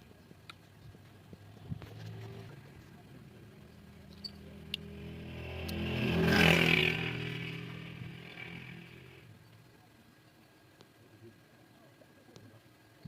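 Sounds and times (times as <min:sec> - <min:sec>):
vehicle engine passing by: 0:01.2 - 0:09.3.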